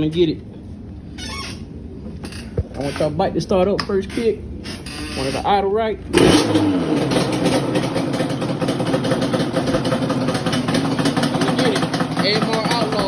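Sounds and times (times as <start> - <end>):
two-stroke engine idling: 6.2 - 13.0.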